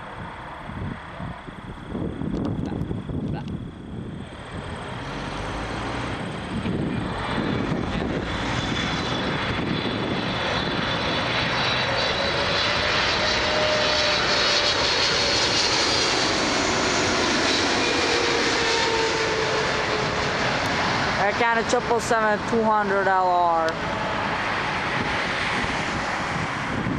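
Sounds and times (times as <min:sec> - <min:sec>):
jet airliner engines whining: 0:00.0 - 0:26.9.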